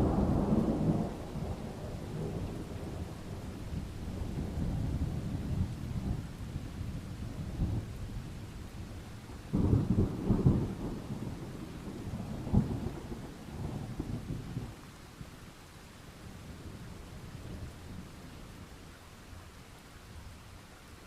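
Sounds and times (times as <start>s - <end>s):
thunder rumbling: 0.0s - 6.6s, 9.5s - 14.8s
steady rain: 0.0s - 21.0s.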